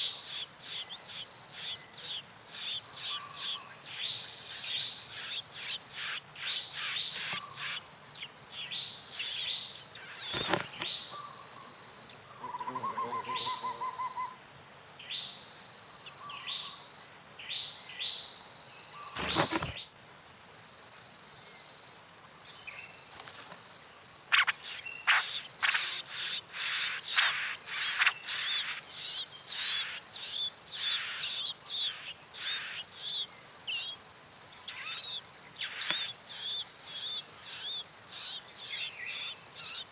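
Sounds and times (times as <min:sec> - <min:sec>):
high-pitched pulsing insect chorus: 0:00.0 - 0:39.9
short falling bird chirps: 0:10.2 - 0:11.3, 0:19.0 - 0:19.9.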